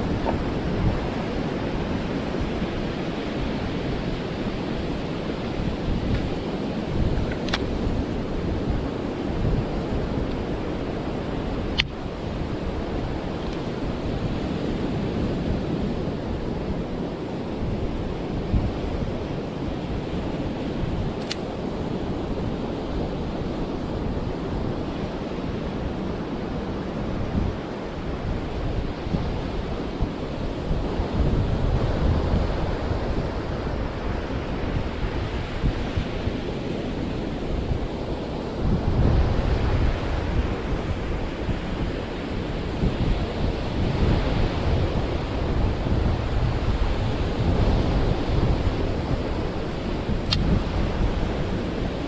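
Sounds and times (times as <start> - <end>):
ocean surf on beach: 0.0 - 52.0
wind buffeting microphone: 0.0 - 52.0
sharp click: 7.3 - 7.7, 21.2 - 21.5, 50.2 - 50.5.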